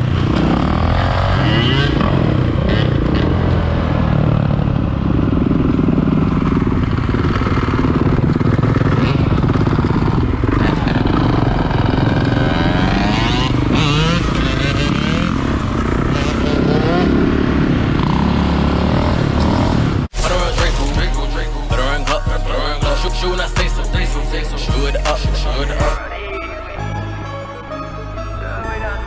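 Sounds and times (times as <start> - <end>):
motorcycle engines revving: 0.0 - 26.0.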